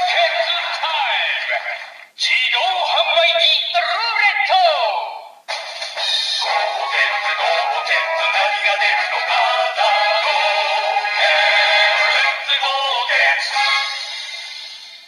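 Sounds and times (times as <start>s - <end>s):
tinny toy jingle with synth singing: 6.0s - 14.5s.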